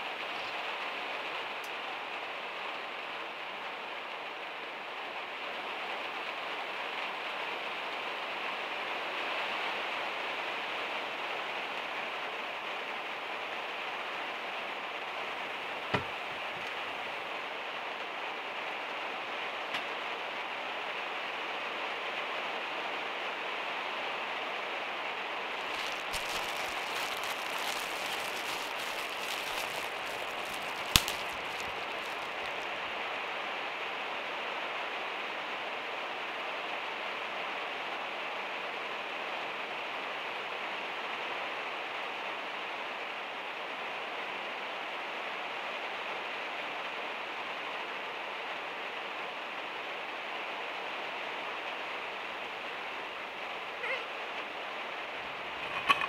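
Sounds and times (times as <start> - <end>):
rain on a metal roof: 0.0 - 56.0
plastic bag crinkling: 25.6 - 32.7.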